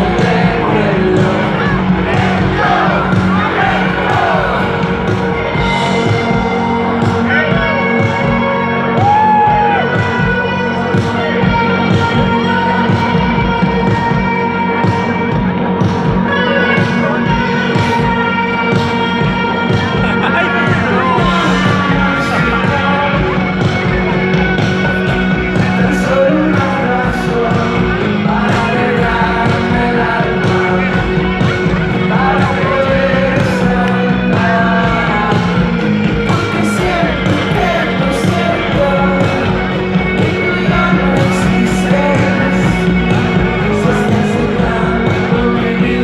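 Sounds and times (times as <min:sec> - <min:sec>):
person singing: 0:00.0 - 0:06.8, 0:16.2 - 0:46.0
live rock band playing: 0:00.0 - 0:46.0.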